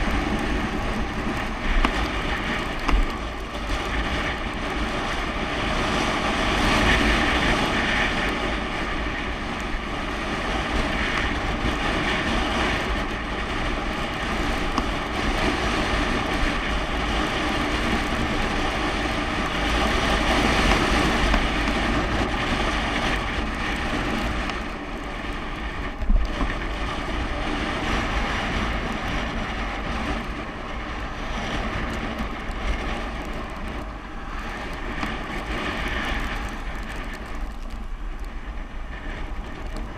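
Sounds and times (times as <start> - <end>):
bicycle bump: 0.0 - 8.8
wind buffeting microphone: 0.0 - 39.9.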